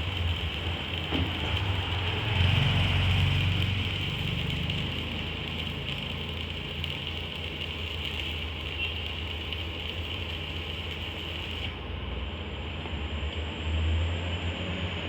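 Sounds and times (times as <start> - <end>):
machine motor humming and hissing: 0.0 - 11.9.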